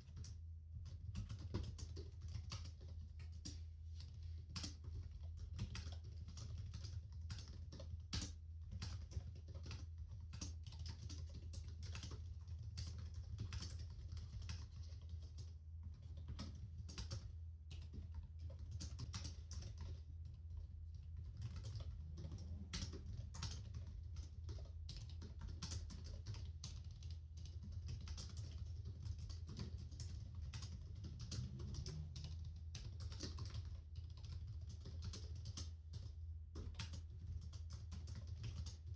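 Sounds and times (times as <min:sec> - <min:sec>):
laptop keyboard typing: 0:00.0 - 0:38.9
steady low hum: 0:11.0 - 0:38.9.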